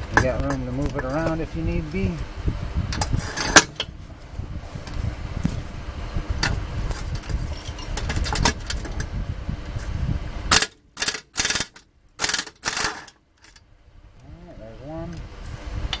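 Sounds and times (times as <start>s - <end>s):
low rumble: 0.0s - 10.9s
handling clatter: 6.3s - 9.1s
socket ratchet clicking: 10.5s - 13.6s.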